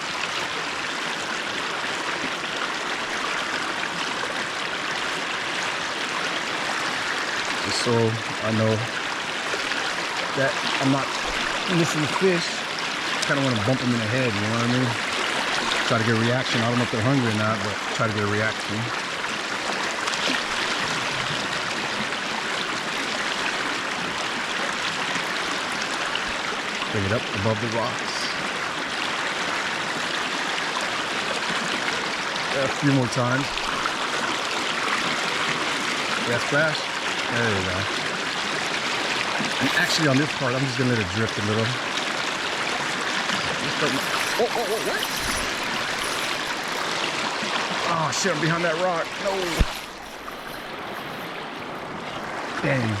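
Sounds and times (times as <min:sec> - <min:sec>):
river rushing over rocks: 0:38.0 - 0:40.5, 0:41.8 - 0:53.0.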